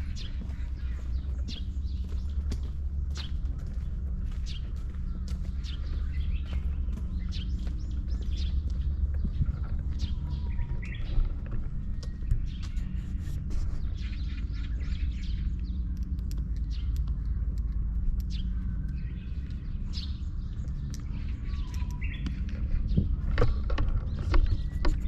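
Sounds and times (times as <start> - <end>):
small birds chirping: 0.0 - 25.0
steady low rumble: 0.0 - 25.0.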